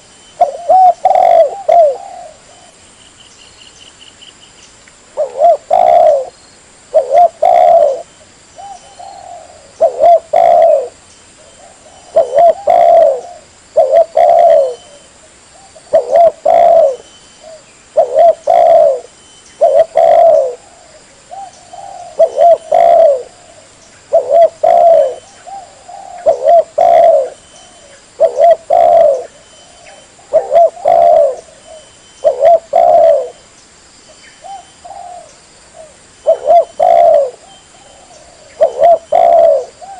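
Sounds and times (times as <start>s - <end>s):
dove cooing: 0.0s - 2.8s, 5.2s - 6.3s, 6.9s - 33.4s, 34.4s - 39.9s.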